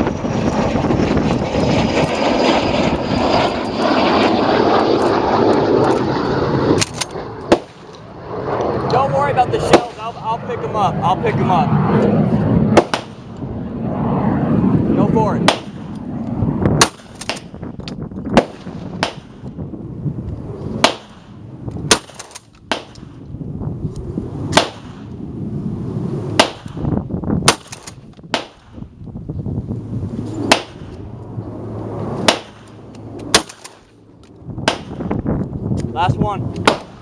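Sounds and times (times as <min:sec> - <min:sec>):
shotgun shots: 0:06.8 - 0:07.9, 0:09.6 - 0:10.2, 0:12.7 - 0:13.3, 0:15.4 - 0:15.9, 0:16.8 - 0:17.6, 0:18.4 - 0:19.4, 0:20.8 - 0:23.2, 0:24.5 - 0:25.1, 0:26.4 - 0:28.8, 0:30.4 - 0:31.0, 0:32.2 - 0:33.9, 0:34.6 - 0:35.1, 0:36.6 - 0:37.0.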